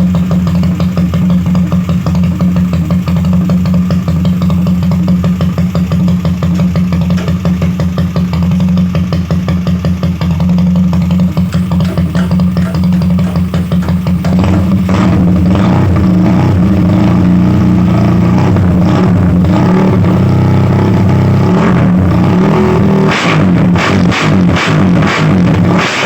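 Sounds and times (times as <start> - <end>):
scooter engine revving: 0.0 - 26.0.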